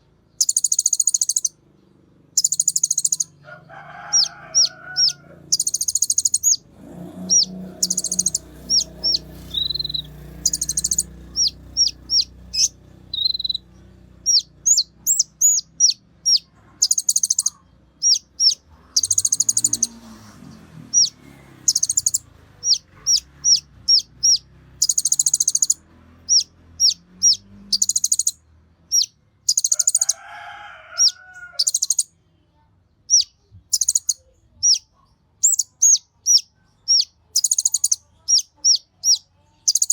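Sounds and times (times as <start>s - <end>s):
songbird chirps and trills: 0.0s - 39.9s
low cluck-like sounds: 2.9s - 28.4s.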